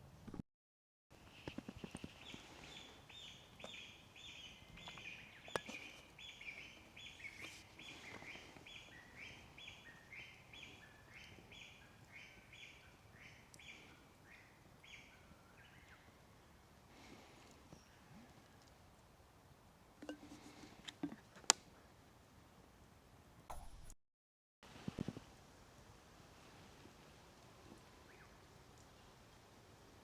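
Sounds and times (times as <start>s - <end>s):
forest background: 1.1s - 24.0s, 24.6s - 30.0s
light ticks: 28.7s - 28.9s.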